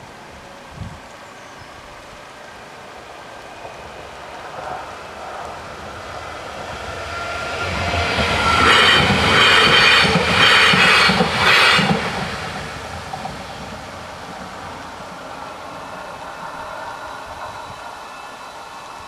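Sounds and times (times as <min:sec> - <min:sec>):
electric train passing: 0:00.0 - 0:19.0.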